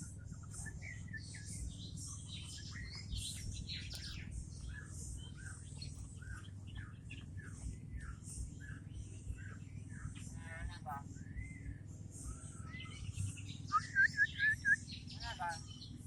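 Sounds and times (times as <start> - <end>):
myna chirps and whistles: 12.3 - 15.1.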